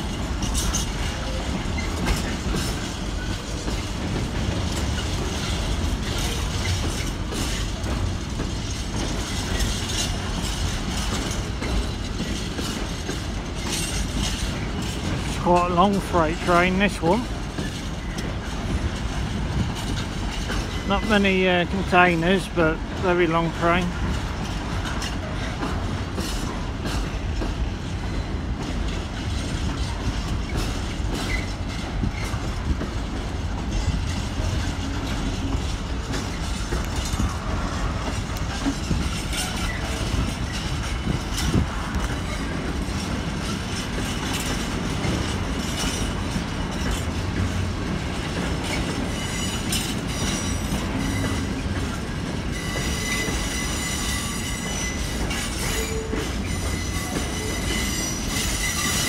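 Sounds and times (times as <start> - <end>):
freight train wheels rumbling: 0.0 - 59.0
wheel clicks over rail joints: 0.4 - 21.2
high wheel squeal: 49.1 - 51.6, 52.5 - 59.0.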